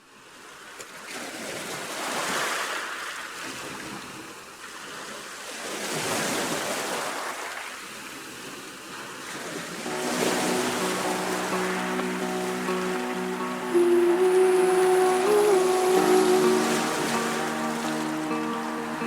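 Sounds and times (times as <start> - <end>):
waves washing in: 9.1 - 19.0.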